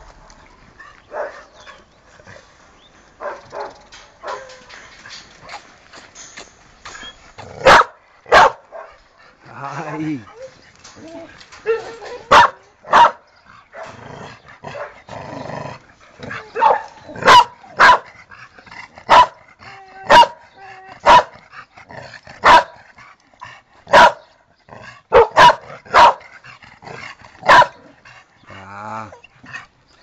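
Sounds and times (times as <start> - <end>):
dog barking: 1.1 - 1.6, 3.2 - 4.6, 7.6 - 9.0, 11.7 - 13.2, 14.8 - 15.0, 16.6 - 18.1, 19.1 - 19.4, 20.1 - 20.4, 21.0 - 21.3, 22.4 - 22.8, 23.9 - 24.3, 25.1 - 26.2, 27.5 - 27.9.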